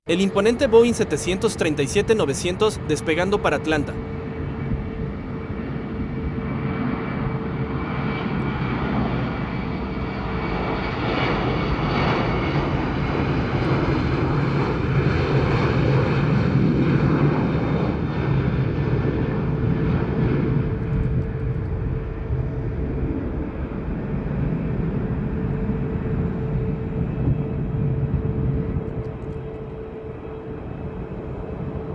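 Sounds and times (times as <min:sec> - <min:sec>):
jet engines at takeoff: 0:00.1 - 0:31.9.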